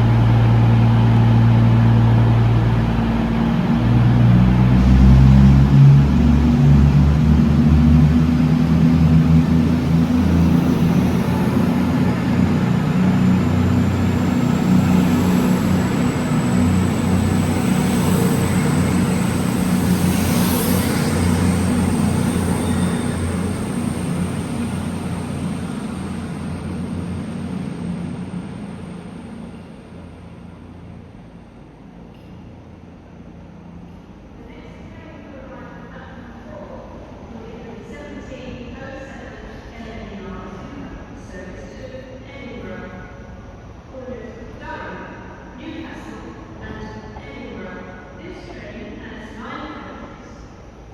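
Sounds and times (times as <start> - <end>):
train engine running: 0.0 - 34.3.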